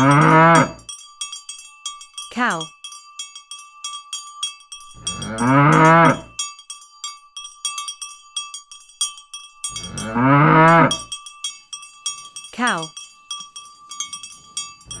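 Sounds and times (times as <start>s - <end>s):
cow mooing: 0.0s - 0.8s, 5.0s - 6.4s, 9.8s - 11.1s
cowbell clanking: 0.0s - 15.0s.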